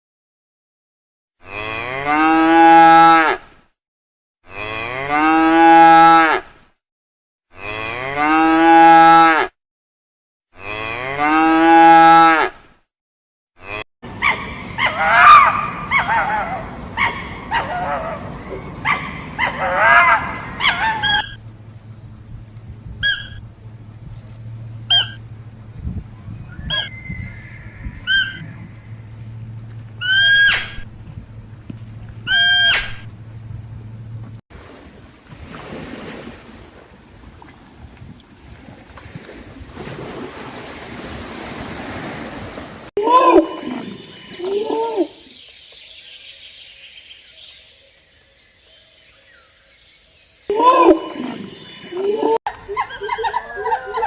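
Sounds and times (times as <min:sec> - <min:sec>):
cow mooing: 0:01.4 - 0:03.4, 0:04.4 - 0:06.4, 0:07.5 - 0:09.5, 0:10.6 - 0:12.6, 0:13.6 - 0:13.8, 0:26.7 - 0:30.8
low steady hum: 0:14.1 - 0:34.4
short sharp animal calls: 0:24.9 - 0:25.2.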